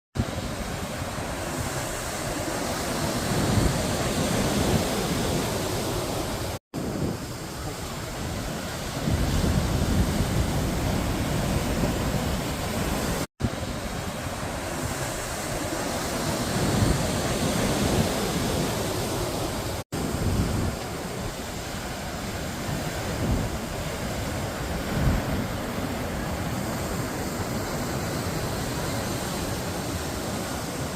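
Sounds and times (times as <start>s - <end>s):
ocean waves breaking: 0.2s - 30.9s.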